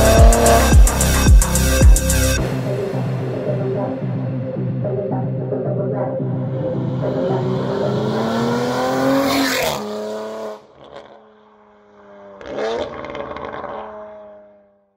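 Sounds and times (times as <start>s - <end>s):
exhaust bursts: 0.0s - 3.5s
car engine accelerating: 0.0s - 4.9s, 6.2s - 14.7s.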